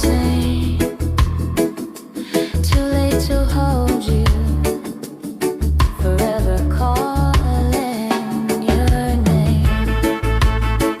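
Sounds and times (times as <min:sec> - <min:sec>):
song with bass and beat: 0:00.0 - 0:11.0.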